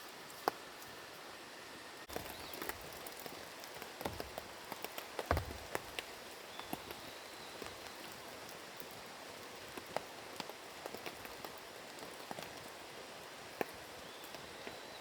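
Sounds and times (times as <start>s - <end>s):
light rain falling: 0.0s - 15.0s.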